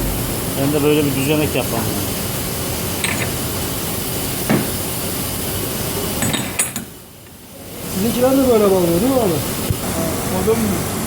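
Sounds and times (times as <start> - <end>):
sharp knock: 0.0 - 1.0.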